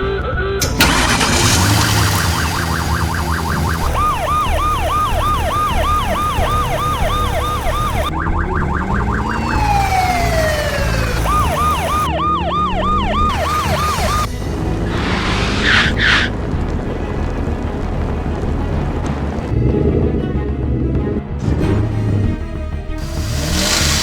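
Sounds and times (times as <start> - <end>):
siren yelping: 1.0 - 14.3, 14.9 - 16.3.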